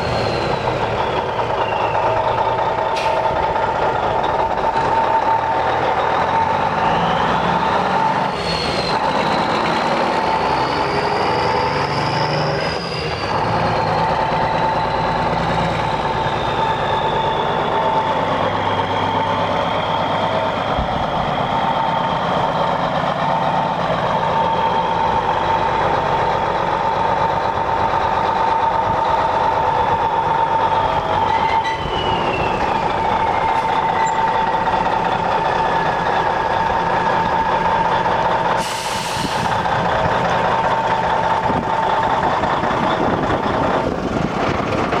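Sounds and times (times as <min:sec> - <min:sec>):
truck diesel engine whining: 0:00.0 - 0:45.0
air hiss: 0:38.6 - 0:39.5.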